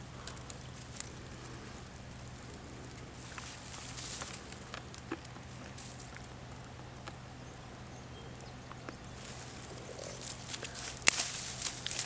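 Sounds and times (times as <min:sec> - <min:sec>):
dry wheat stalks rustling: 0:00.0 - 0:06.6, 0:09.0 - 0:12.0
wheat stalk snapping: 0:09.2 - 0:12.0.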